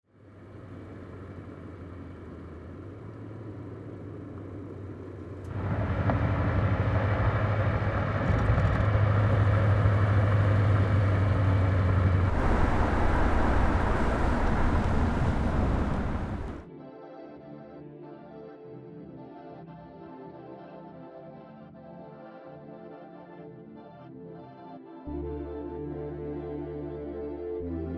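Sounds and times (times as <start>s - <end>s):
car engine humming: 0.6s - 16.6s.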